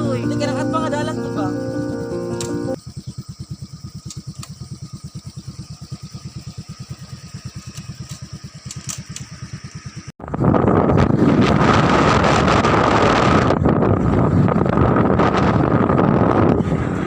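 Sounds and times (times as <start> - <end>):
small engine idling: 0.0 - 10.2
wind buffeting microphone: 10.2 - 17.0.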